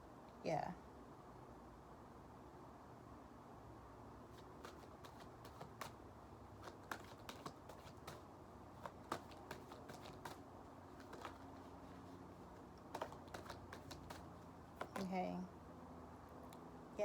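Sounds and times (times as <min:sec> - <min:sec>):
cards being shuffled: 0:04.3 - 0:15.2.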